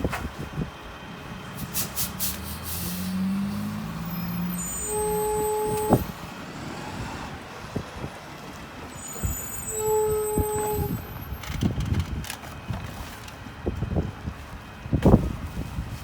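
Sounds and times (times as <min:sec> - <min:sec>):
truck diesel engine running: 0:00.3 - 0:09.6.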